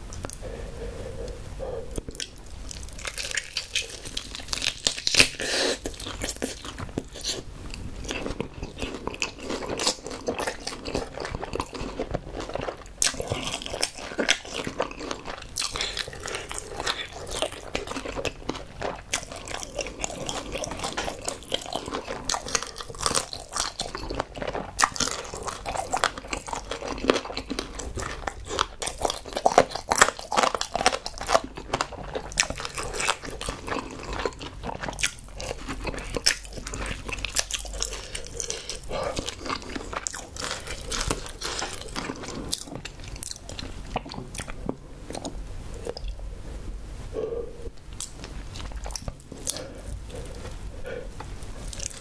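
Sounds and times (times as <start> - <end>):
chewing sounds: 0.1 - 46.2, 47.8 - 52.0
crunching fried chicken: 2.1 - 46.0.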